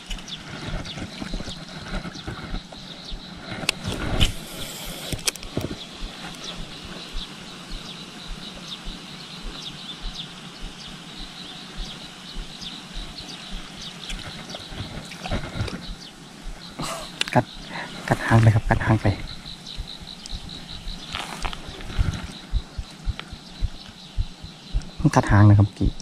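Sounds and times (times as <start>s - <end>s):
birds chirping: 0.0s - 26.0s
sharp clicks: 3.5s - 9.0s, 18.8s - 25.0s.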